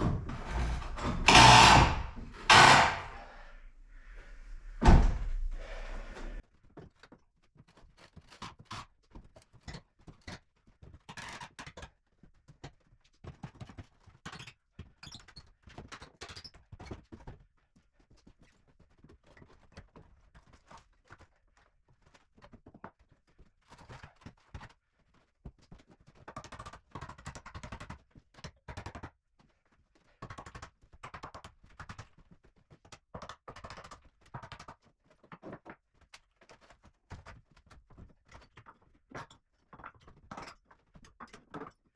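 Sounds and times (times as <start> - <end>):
wooden floorboards knocking: 0.0 - 3.4, 4.0 - 6.4
wood scraping and clattering: 0.0 - 6.4.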